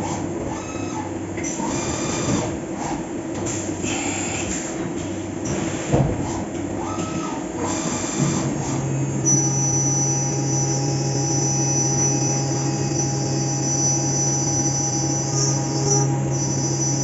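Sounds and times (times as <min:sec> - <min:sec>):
milling machine hum: 0:06.2 - 0:17.0
high spindle whine: 0:07.8 - 0:17.0.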